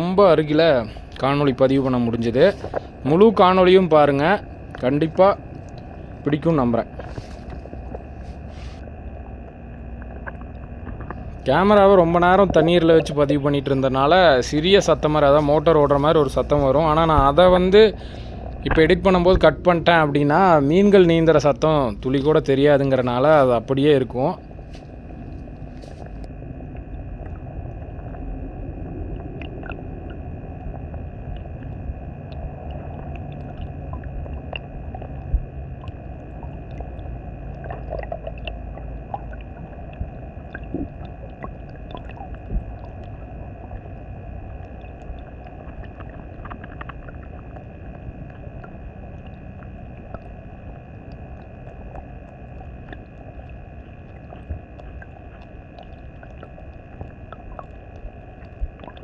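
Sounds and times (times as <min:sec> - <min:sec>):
underwater current rumble: 0:00.0 - 0:59.0
small underwater clicks: 0:04.4 - 0:08.5, 0:09.9 - 0:11.6, 0:29.1 - 0:59.0.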